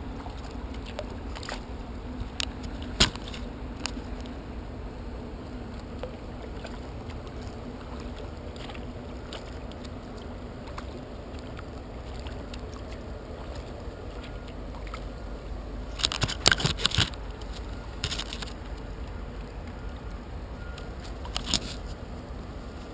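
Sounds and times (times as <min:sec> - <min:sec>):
splashes and knocks: 0:00.0 - 0:04.4, 0:05.6 - 0:15.2
faint low hum: 0:00.0 - 0:22.9
paddle drips: 0:00.0 - 0:22.9
water washing around hull: 0:00.0 - 0:22.9.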